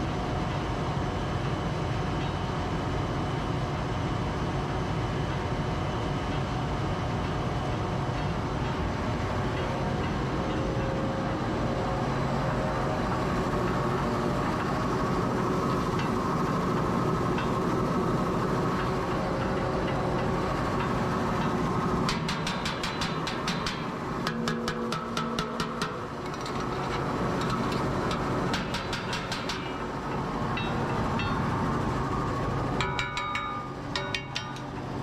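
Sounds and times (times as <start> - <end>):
faint steady tones: 5.4 - 35.0
vehicle rumbling: 7.9 - 24.5, 25.5 - 35.0.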